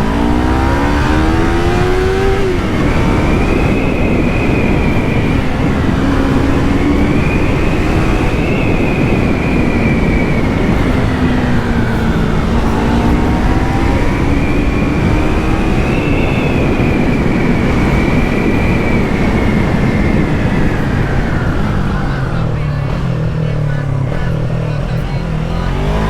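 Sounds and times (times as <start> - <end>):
motorcycle engine revving: 0.0 - 26.0
wind rush: 0.0 - 26.0.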